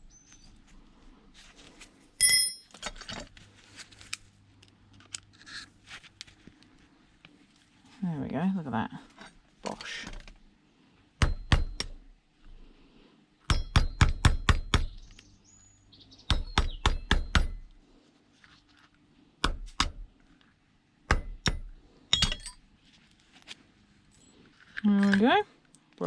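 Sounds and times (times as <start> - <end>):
hammer ringing on metal: 13.5 - 14.8.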